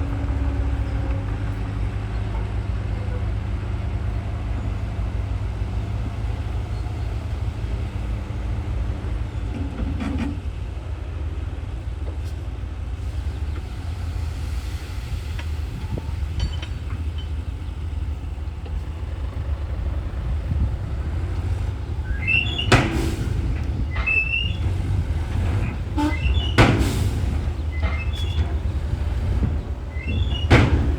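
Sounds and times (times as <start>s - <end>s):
heavy diesel machinery rumbling: 0.0s - 30.9s
metallic clanks: 20.9s - 30.9s
short high squeal: 22.0s - 29.2s, 29.9s - 30.9s.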